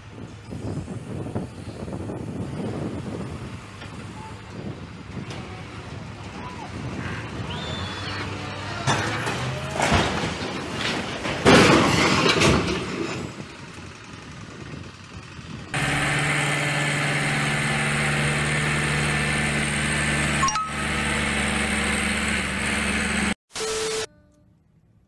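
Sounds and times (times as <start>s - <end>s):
vehicle engine humming: 0.0s - 11.3s, 13.4s - 23.4s
loud noisy clatter: 8.6s - 13.5s.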